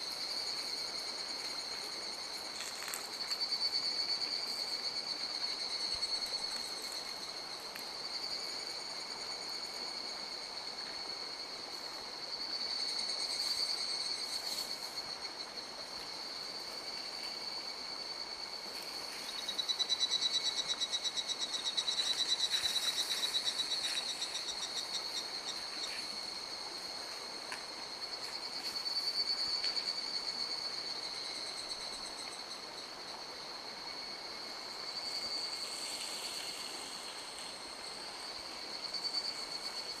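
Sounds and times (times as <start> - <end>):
high-pitched frog or insect calls: 0.0 - 10.5, 12.3 - 33.0.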